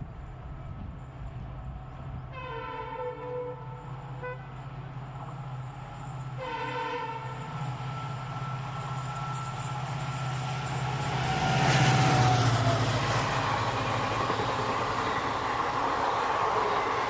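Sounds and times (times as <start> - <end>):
train horn blasts: 2.3 - 4.7, 6.4 - 7.5.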